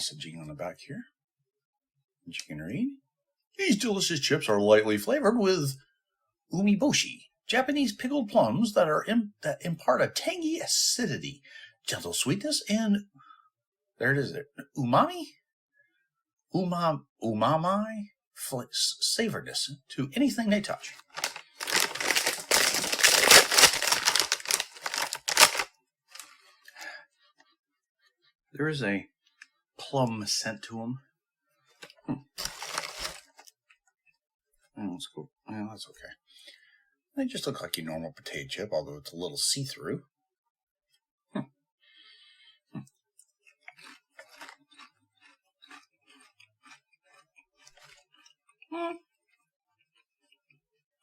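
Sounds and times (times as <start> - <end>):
chip bag crinkling: 21.0 - 26.3, 32.4 - 33.5.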